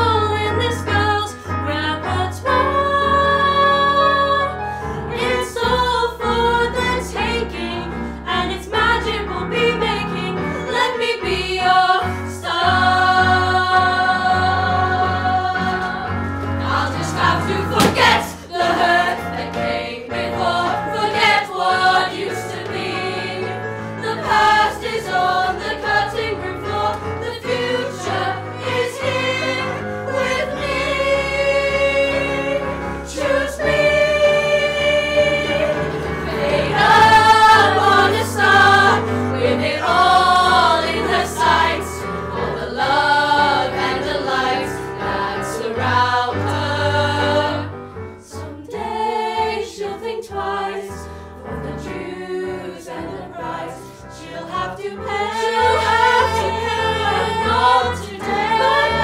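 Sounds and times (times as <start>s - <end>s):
group of voices singing: 0.0s - 59.0s
instrumental accompaniment: 6.4s - 49.5s.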